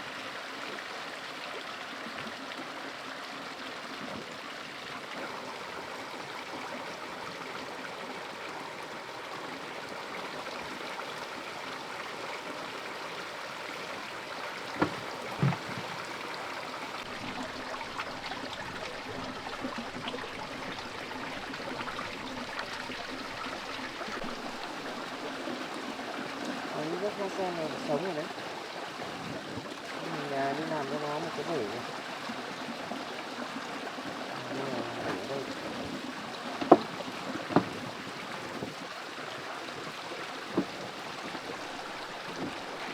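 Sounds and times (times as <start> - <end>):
stream trickling and gurgling: 0.0 - 42.9
brief knocks: 14.8 - 16.0.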